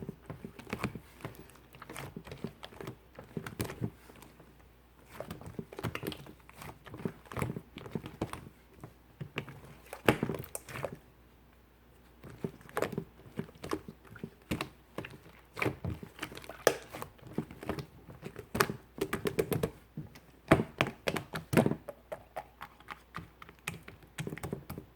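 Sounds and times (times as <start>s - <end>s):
slime squished by hand: 12.2s - 19.8s.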